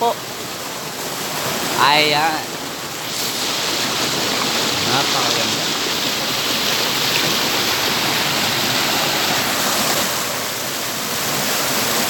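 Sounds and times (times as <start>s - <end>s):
waterfall pouring: 0.0s - 12.0s.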